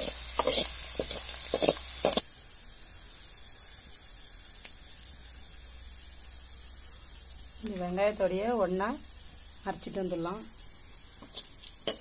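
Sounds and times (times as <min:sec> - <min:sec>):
steel ladle scraping pan: 0:00.0 - 0:02.2, 0:11.2 - 0:12.0
faint steady hiss: 0:00.0 - 0:12.0
nuts sizzling in hot oil: 0:00.0 - 0:12.0.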